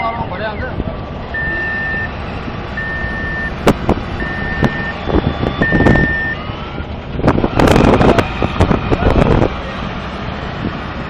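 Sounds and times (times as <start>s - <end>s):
engine rumble: 0.0s - 11.0s
reversing alarm beeping: 1.3s - 2.2s, 2.8s - 6.9s.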